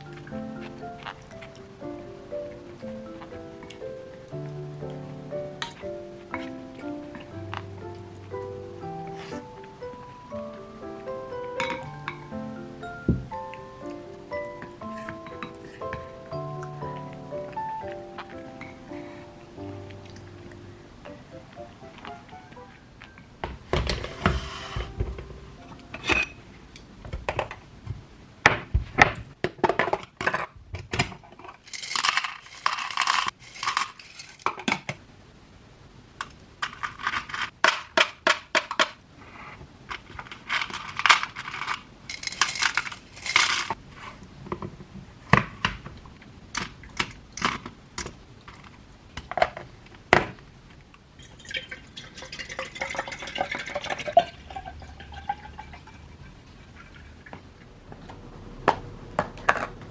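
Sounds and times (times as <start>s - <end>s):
dishes and utensils clinking: 5.6s - 9.7s, 11.4s - 19.2s, 23.1s - 27.5s, 40.4s - 43.8s, 51.2s - 57.4s
scraping or rustling: 23.7s - 25.2s, 31.1s - 34.7s, 36.6s - 37.6s, 39.2s - 44.3s
liquid poured into a container: 51.2s - 57.2s.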